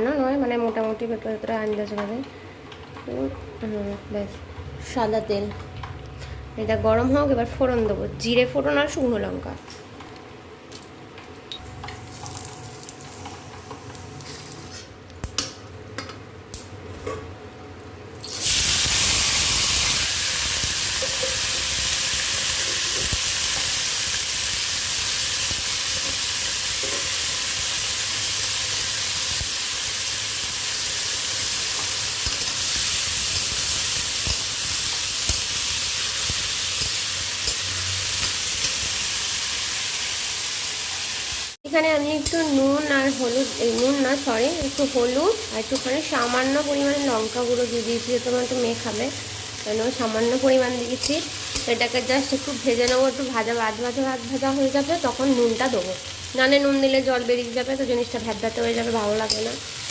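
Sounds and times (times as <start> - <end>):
food sizzling in hot oil: 12.0 - 14.9, 18.2 - 59.9.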